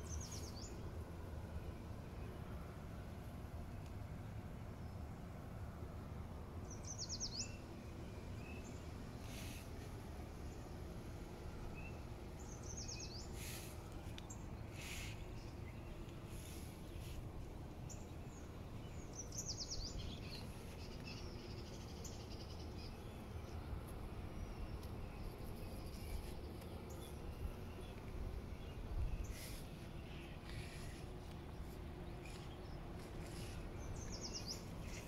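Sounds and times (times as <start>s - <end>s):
songbird trills: 0.0s - 0.9s, 6.6s - 9.9s, 11.7s - 35.0s
low outdoor rumble: 0.0s - 35.0s.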